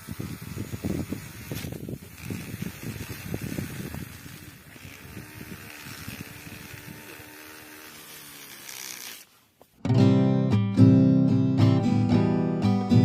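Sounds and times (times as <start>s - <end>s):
toy electric motor running: 0.0s - 9.3s.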